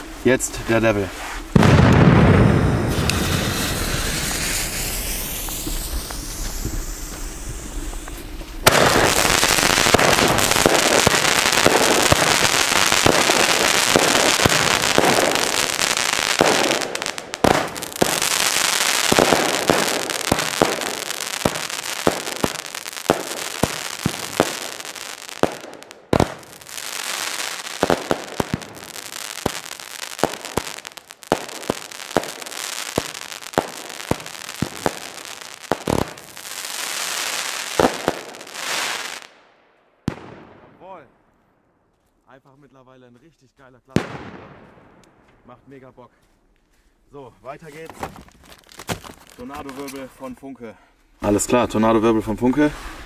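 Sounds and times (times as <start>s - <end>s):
fireworks launching with hissing: 0.0s - 39.4s, 47.7s - 50.1s, 52.4s - 53.0s
firework bangs and crackling: 0.0s - 41.0s, 43.9s - 45.4s, 47.6s - 50.1s.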